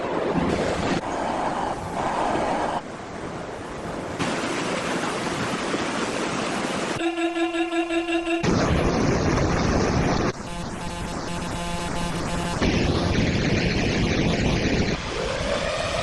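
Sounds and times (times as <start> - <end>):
storm wind: 0.0 - 6.4, 8.4 - 16.0
floodwater rushing: 0.0 - 16.0
held musical tone: 7.0 - 8.5, 10.4 - 12.7.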